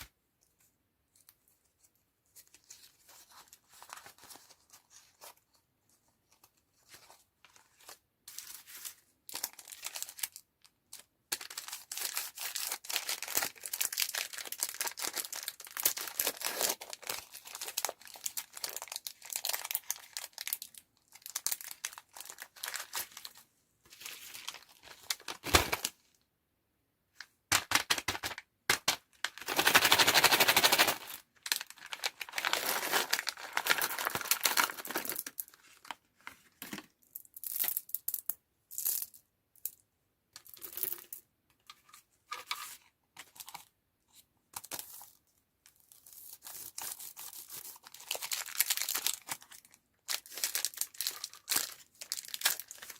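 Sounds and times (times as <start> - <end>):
candy wrappers crinkling and tearing: 8.4 - 23.4, 28.8 - 35.9, 45.8 - 52.9.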